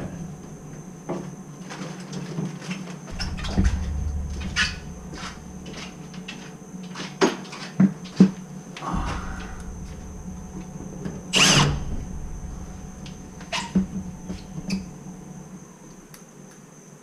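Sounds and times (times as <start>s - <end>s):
faint hum with high tone: 0.0s - 17.0s
low rumble: 3.1s - 16.2s.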